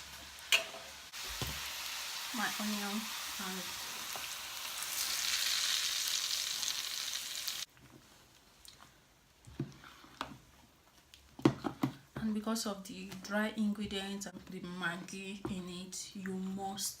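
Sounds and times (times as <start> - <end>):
onion sizzling in a pan: 0.0 - 7.7.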